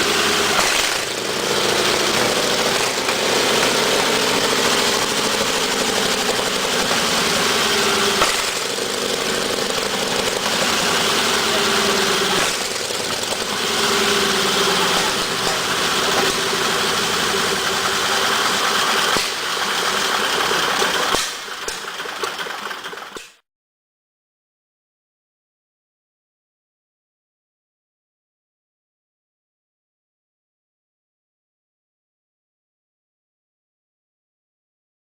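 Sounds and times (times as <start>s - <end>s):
radial engine running: 0.0s - 23.4s.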